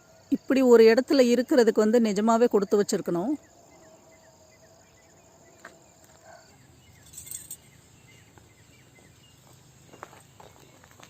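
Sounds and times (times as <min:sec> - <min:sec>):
insects: 0:00.0 - 0:11.0
bird calls: 0:03.4 - 0:11.0.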